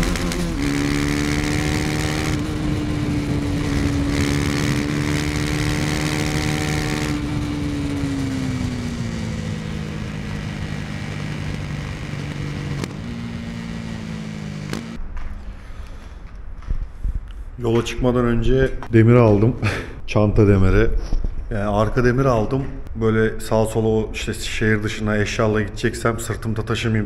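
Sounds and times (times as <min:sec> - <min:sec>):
motorcycle engine revving: 0:00.0 - 0:15.1.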